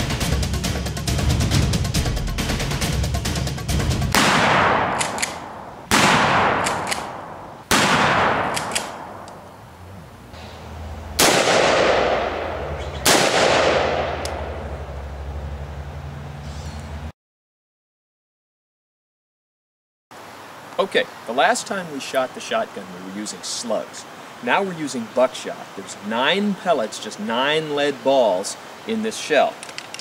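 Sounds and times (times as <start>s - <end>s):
echoing gunshots: 4.1s - 9.4s, 11.2s - 14.8s.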